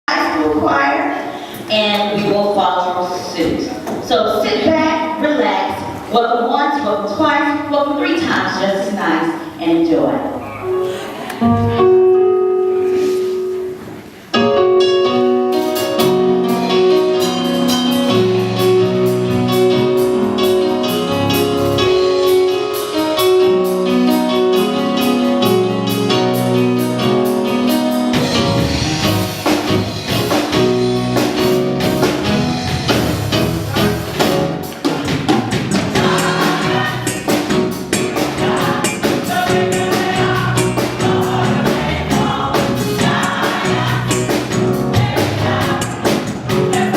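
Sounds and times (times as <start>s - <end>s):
keyboard accompaniment: 6.7s - 46.9s
choir singing gospel: 28.1s - 46.9s
percussion: 28.1s - 46.9s.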